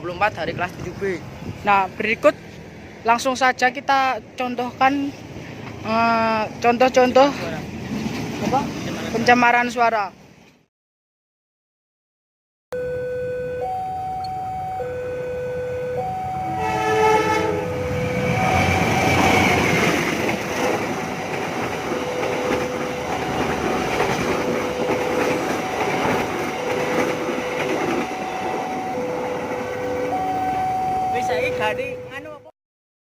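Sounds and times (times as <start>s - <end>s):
train rumbling with wheel clatter: 0.0s - 10.6s, 16.5s - 32.4s
two-note alarm: 12.8s - 19.4s, 21.9s - 32.3s
train horn: 16.4s - 19.5s, 24.4s - 30.6s.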